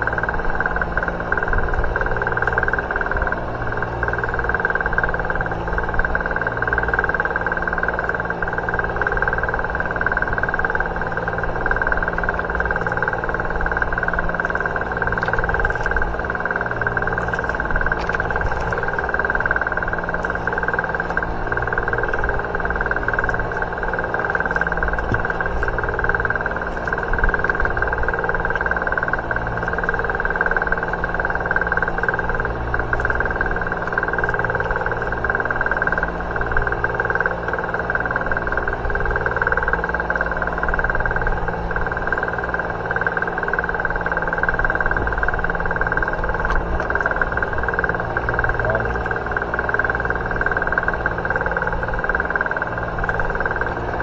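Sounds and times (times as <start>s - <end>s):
engine droning: 0.0s - 54.0s.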